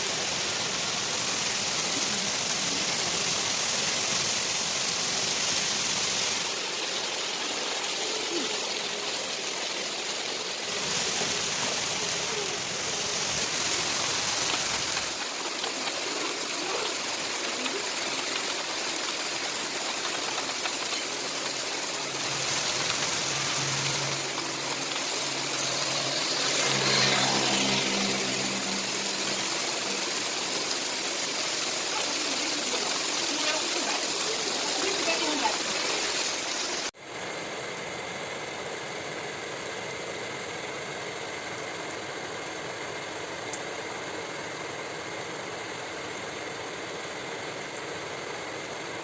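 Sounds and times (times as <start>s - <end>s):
heavy rain: 0.0s - 37.0s
rushing runoff water: 0.0s - 37.0s.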